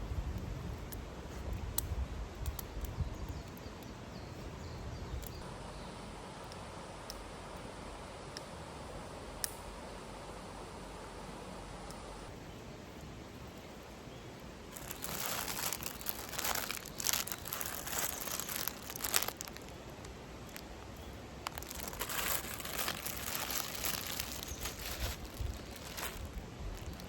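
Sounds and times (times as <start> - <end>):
crinkling and rustling: 14.7 - 27.0.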